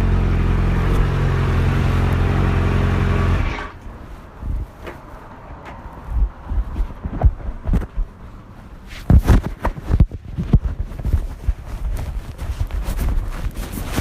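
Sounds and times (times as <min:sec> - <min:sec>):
low thumps and knocks: 0:04.5 - 0:08.2.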